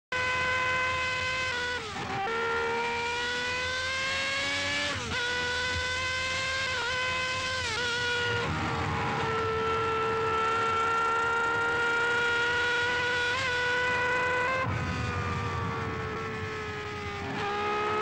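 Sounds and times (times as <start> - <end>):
racing car engine at full throttle: 0.1 - 18.0.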